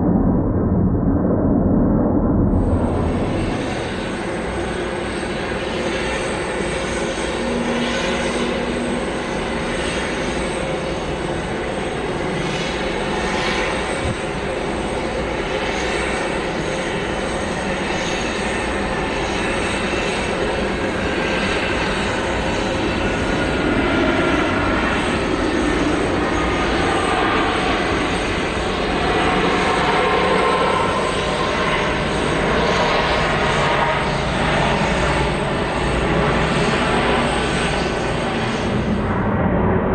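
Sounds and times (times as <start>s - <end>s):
faint engine whine: 0.0s - 39.9s
jet engines rushing: 0.0s - 39.9s.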